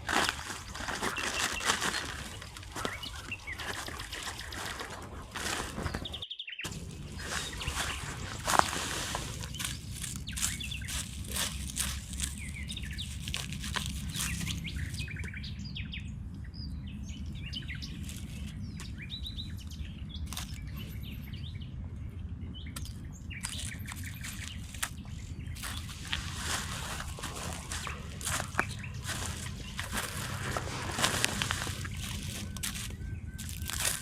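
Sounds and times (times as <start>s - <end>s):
small birds chirping and twittering: 0.0s - 34.0s
steady low rumble: 0.0s - 34.0s
sharp clicks and crackles: 6.7s - 15.3s, 25.6s - 34.0s.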